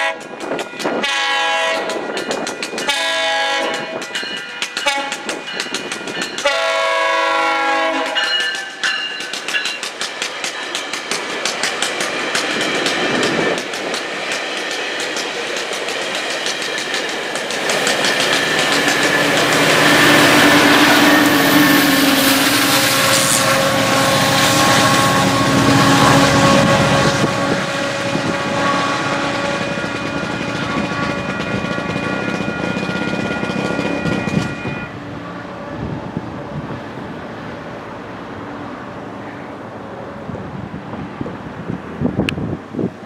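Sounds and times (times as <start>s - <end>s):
diesel locomotive running: 0.0s - 42.9s
railcars rolling over rails: 0.0s - 43.0s
wind on microphone: 17.6s - 34.9s, 35.5s - 37.2s, 40.0s - 43.0s.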